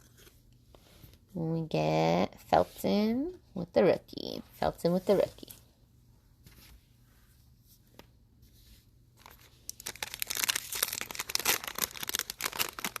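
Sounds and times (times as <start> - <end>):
card pack wrapper crinkling: 9.2 - 13.0.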